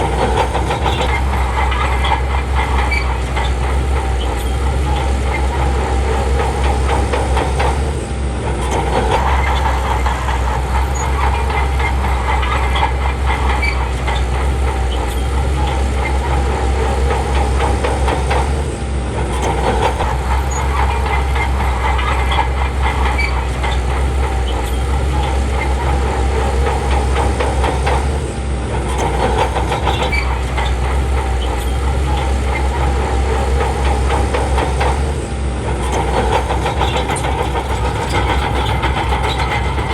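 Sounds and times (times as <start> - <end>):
bulldozer diesel engine under load: 0.0 - 39.9
steel tracks clanking: 0.0 - 39.9.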